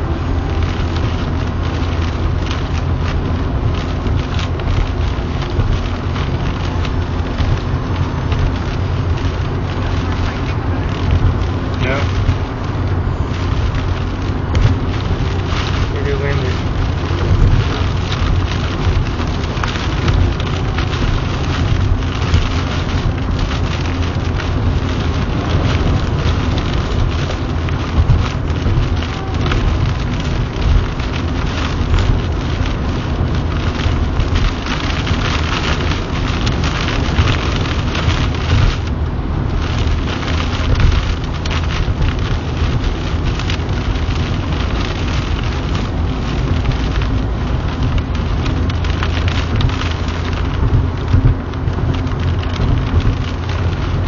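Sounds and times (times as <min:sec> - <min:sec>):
car rumbling on wet road: 0:00.0 - 0:54.0
heavy rain on car roof: 0:00.0 - 0:54.0.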